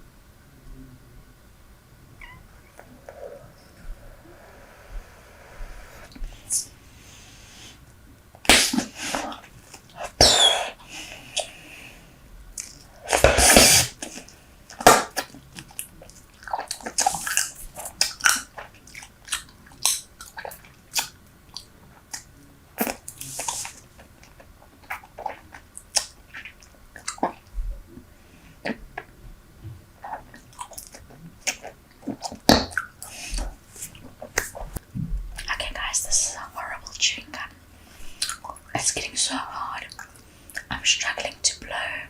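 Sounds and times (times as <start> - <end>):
hissing burst of air: 3.0 - 7.8
gum chewing wet smacks: 14.0 - 27.5, 30.1 - 34.8, 38.1 - 38.7.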